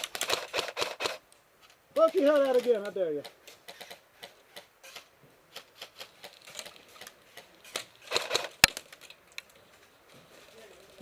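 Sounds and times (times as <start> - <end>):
airsoft gunfire clicks: 0.0 - 1.2, 7.0 - 8.8
sharp crack: 0.0 - 1.2, 2.0 - 9.5.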